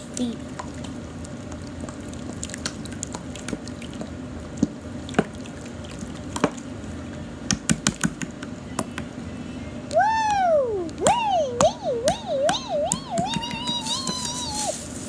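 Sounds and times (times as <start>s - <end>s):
slime squelching and clicking: 0.1s - 6.7s.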